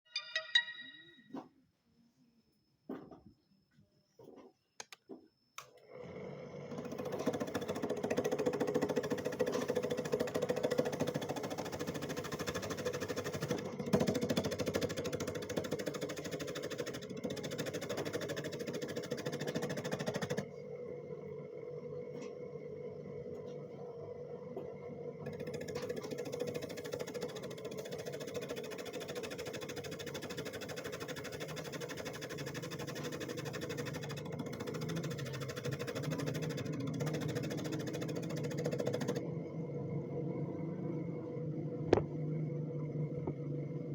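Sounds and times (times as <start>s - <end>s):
shredder machine running: 5.8s - 21.8s, 25.2s - 41.2s.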